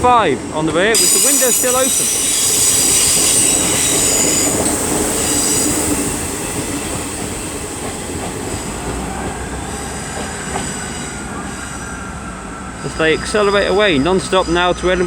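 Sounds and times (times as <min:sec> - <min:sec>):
diesel train running: 0:00.0 - 0:15.0
wheels squealing on track: 0:01.0 - 0:06.4.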